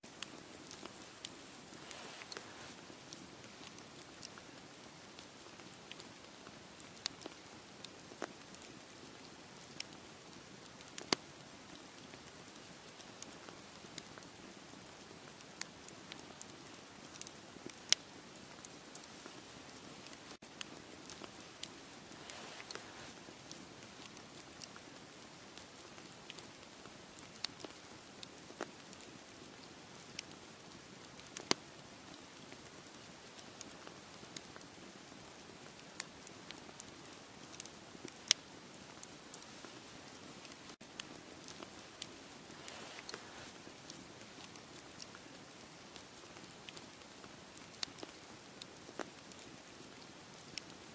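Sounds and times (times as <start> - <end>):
campfire crackling: 0.0 - 50.9
faint steady hiss: 0.0 - 50.9
sharp pops from fire: 10.9 - 11.2, 31.4 - 31.6.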